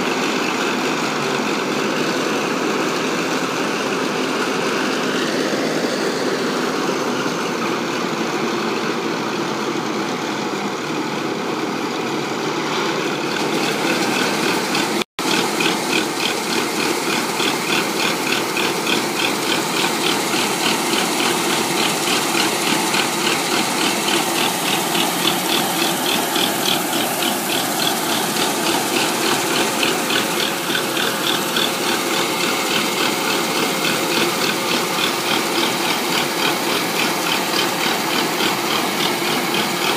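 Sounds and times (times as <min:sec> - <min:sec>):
combine harvester running: 0:00.0 - 0:39.9
fast rhythmic clatter: 0:13.3 - 0:39.9.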